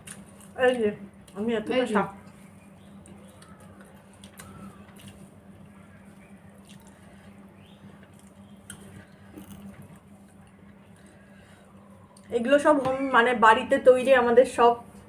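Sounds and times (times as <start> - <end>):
steady low hum: 0.0 - 15.0
soft chewing: 2.2 - 12.3.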